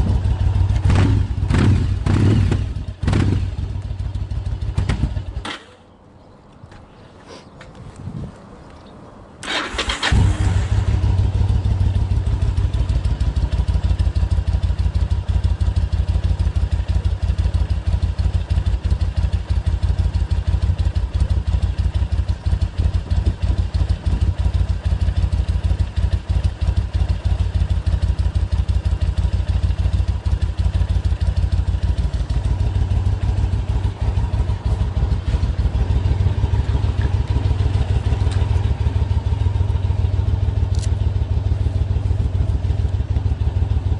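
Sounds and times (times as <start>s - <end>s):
motorcycle engine idling: 0.0s - 6.0s, 9.5s - 43.9s.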